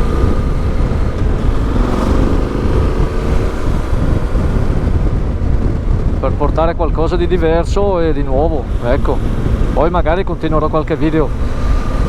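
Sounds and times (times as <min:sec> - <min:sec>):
motorcycle engine running: 0:00.0 - 0:12.0
wind on microphone: 0:00.0 - 0:12.0.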